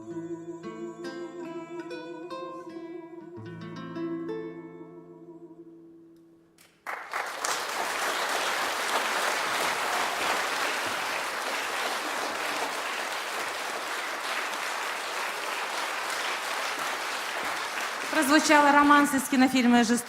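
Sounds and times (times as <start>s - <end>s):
audience applause: 6.8s - 19.6s.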